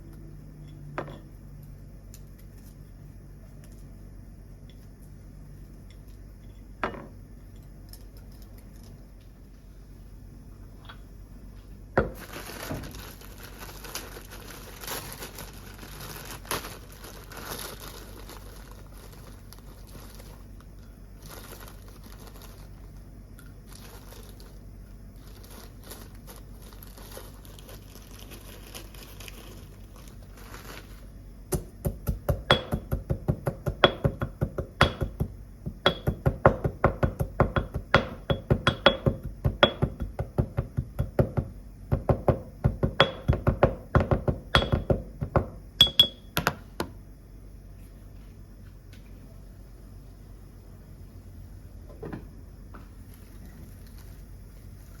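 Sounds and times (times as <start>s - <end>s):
crinkling and rustling: 12.1s - 23.0s, 23.6s - 31.2s, 53.0s - 55.0s.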